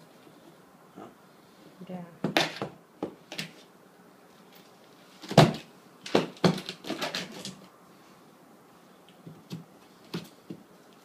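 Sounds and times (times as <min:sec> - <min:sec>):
packaging and parts knocking: 0:05.2 - 0:07.6.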